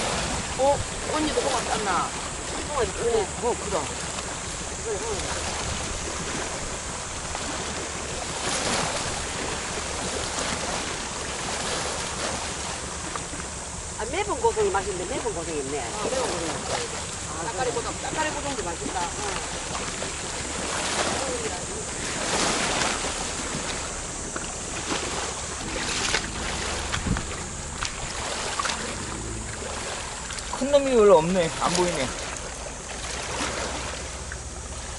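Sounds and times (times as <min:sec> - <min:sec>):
wind noise on microphone: 0:00.0 - 0:01.5, 0:22.2 - 0:30.0
seawater sloshing at shore: 0:00.0 - 0:34.9
surf washing: 0:00.0 - 0:34.9
low thud: 0:25.6 - 0:29.6.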